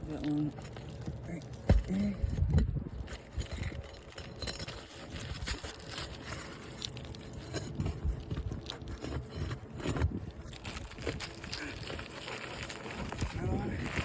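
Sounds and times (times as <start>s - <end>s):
roof shingles scraping and crackling: 2.9s - 14.0s.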